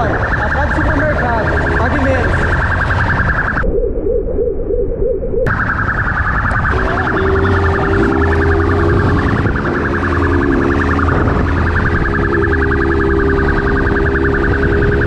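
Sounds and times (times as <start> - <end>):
police siren yelping: 0.0 - 15.0
steady low tone: 0.2 - 15.0.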